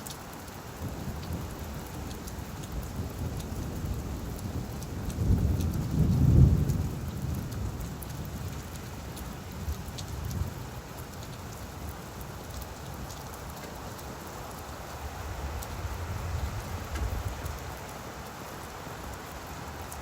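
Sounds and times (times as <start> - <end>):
rain falling on leaves: 0.0 - 20.0
distant thunder rumble: 2.5 - 9.0.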